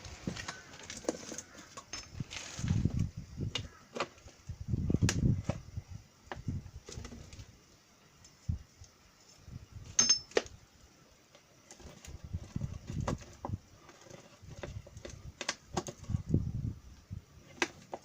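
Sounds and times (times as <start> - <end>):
sharp ringing metallic clink: 10.0 - 10.4.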